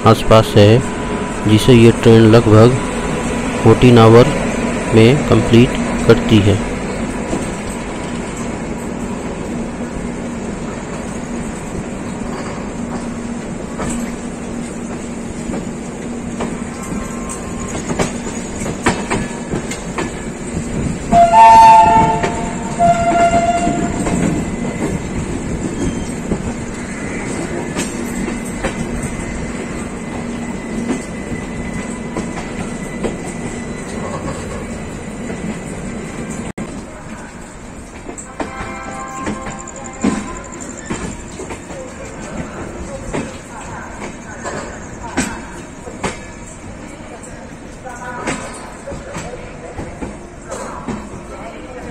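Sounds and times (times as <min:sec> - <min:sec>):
train wheels clattering over rails: 0:01.5 - 0:51.9
train horn: 0:21.1 - 0:24.4, 0:38.2 - 0:40.6.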